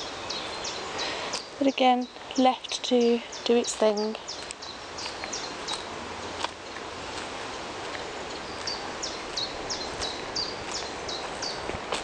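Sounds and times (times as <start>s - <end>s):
steady outdoor hiss: 0.0s - 12.0s
footfalls on dirt path: 5.0s - 12.0s.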